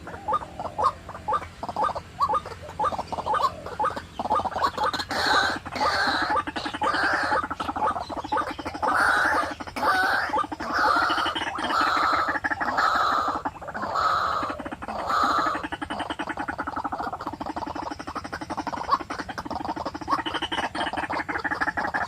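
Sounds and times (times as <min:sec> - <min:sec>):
rattling gurgling bird call: 0:00.0 - 0:22.0
waterhen croaking: 0:00.0 - 0:22.0.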